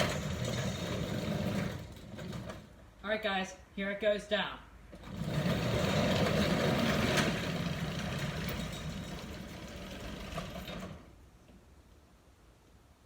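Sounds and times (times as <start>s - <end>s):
garage door rollers rumbling: 0.0s - 2.9s, 4.9s - 11.2s.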